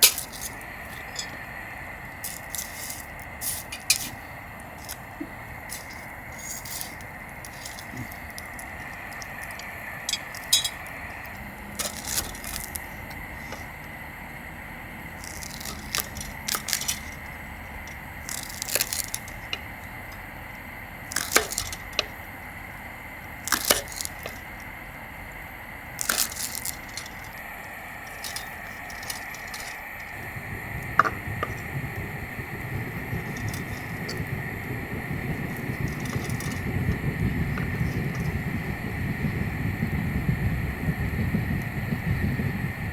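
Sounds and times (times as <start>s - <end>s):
campfire crackling and popping: 0.0s - 42.9s
steady high hum: 0.0s - 42.9s
low rumble: 25.3s - 42.9s.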